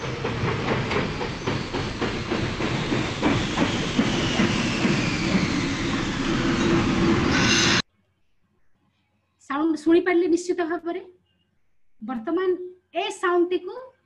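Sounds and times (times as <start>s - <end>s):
train wheels clacking over rail joints: 0.0s - 7.8s
faint falling squeal: 0.9s - 7.8s.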